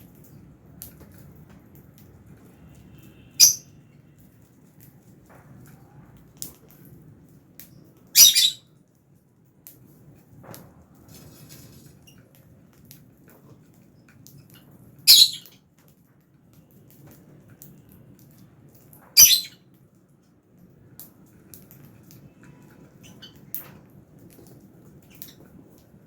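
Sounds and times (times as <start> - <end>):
lovebirds squawking shrilly: 8.2 - 8.6
faint bird chirps: 19.2 - 19.6.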